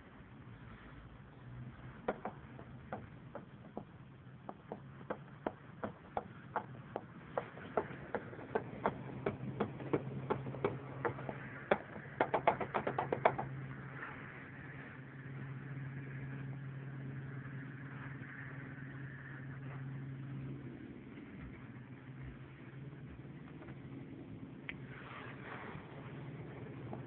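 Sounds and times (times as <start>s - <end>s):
low drivetrain hum: 0.0s - 27.0s
differential knocking clacks: 2.0s - 13.6s.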